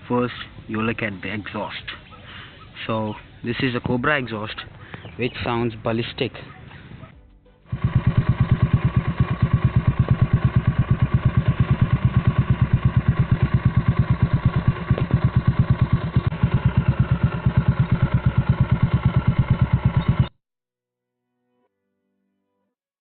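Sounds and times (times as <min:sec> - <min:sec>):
motorcycle engine idling: 0:06.8 - 0:20.4.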